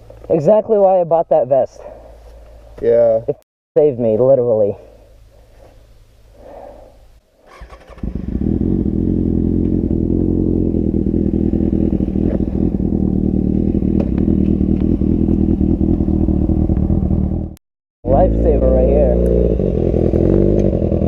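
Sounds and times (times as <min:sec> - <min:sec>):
motorcycle engine idling: 0:07.6 - 0:17.5.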